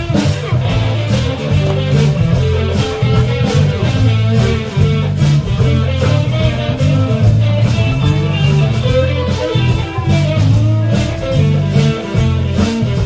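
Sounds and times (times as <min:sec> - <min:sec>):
bass line: 0:00.0 - 0:13.0
electric guitar lead: 0:00.0 - 0:13.0.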